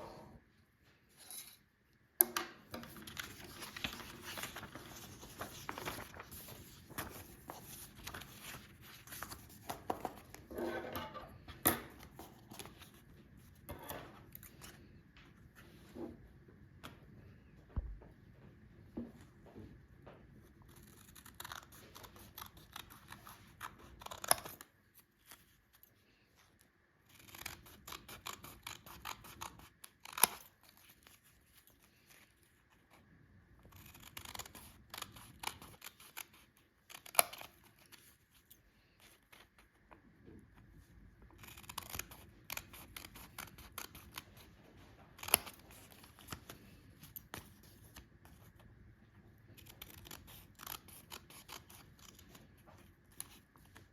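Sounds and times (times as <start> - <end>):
scissors snipping paper: 2.8 - 10.5, 20.6 - 25.9, 27.1 - 32.4, 33.6 - 39.7, 41.3 - 44.6, 45.2 - 48.5, 49.5 - 53.9.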